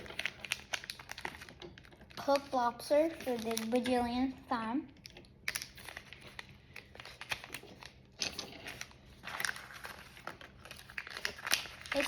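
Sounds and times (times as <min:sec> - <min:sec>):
plastic packaging crinkling: 0:00.0 - 0:04.3, 0:05.0 - 0:12.0.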